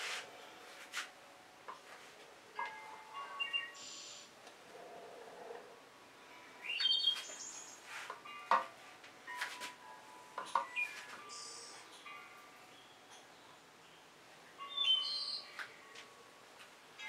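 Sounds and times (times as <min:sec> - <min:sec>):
birds chirping: 0:02.6 - 0:05.7, 0:06.3 - 0:07.9, 0:10.4 - 0:16.2.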